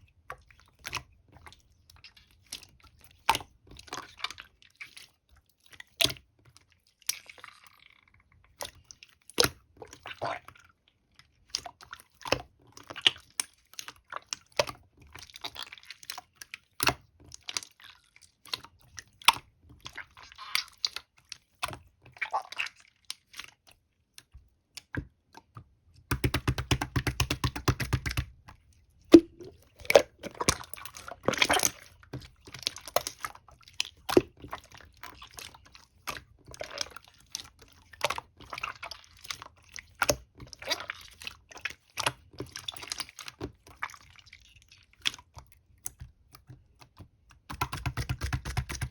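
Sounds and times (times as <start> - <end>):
sticky clicks and pops: 26.1 - 28.3.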